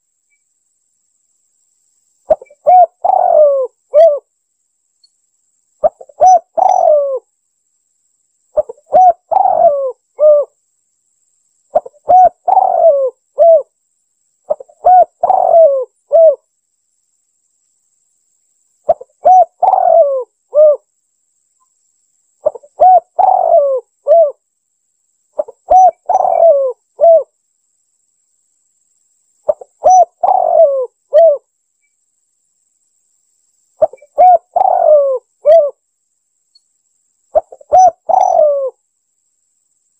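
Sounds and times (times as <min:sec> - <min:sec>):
dove cooing: 0:02.3 - 0:04.3, 0:05.8 - 0:07.3, 0:08.6 - 0:10.6, 0:11.7 - 0:13.7, 0:14.5 - 0:16.4, 0:18.9 - 0:20.8, 0:22.4 - 0:24.4, 0:25.4 - 0:27.3, 0:29.5 - 0:31.4, 0:33.8 - 0:35.8, 0:37.3 - 0:38.8.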